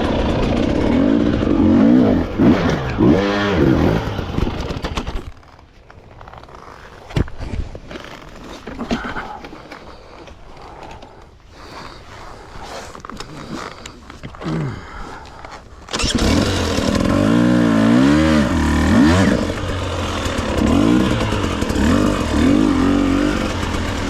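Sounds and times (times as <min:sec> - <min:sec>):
dirt bike engine: 0:00.0 - 0:05.6, 0:14.5 - 0:24.0.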